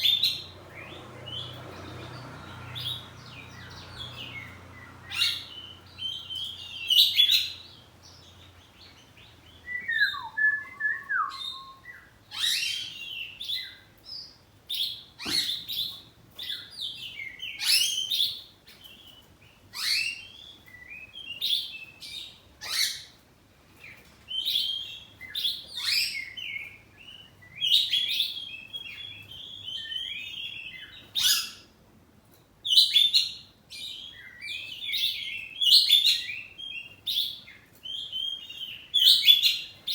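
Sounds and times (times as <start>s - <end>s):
bird singing chirps and whistles: 9.4s - 13.8s, 24.3s - 31.6s, 32.7s - 39.9s.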